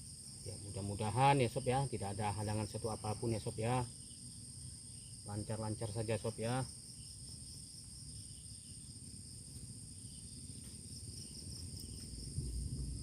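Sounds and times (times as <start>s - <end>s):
crickets shrilling: 0.0s - 13.0s
low background rumble: 8.8s - 13.0s.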